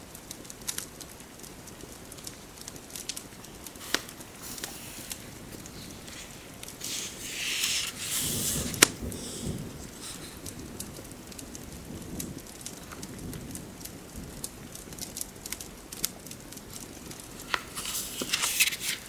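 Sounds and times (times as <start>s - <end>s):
fireplace crackling and popping: 0.0s - 19.0s
rain: 0.0s - 19.0s
rustling: 3.0s - 11.3s, 16.6s - 19.0s.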